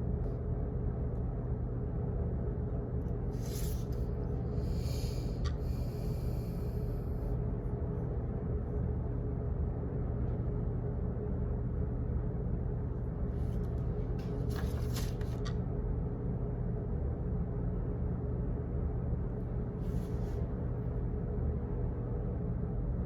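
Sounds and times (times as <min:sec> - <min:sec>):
faint constant hum: 0:00.0 - 0:23.0
low office rumble: 0:00.0 - 0:23.0.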